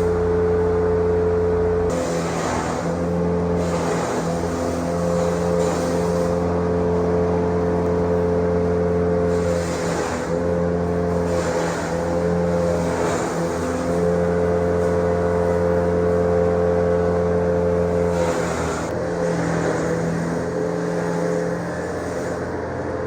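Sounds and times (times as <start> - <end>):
grass chopping machine motor humming: 0.0 - 23.0.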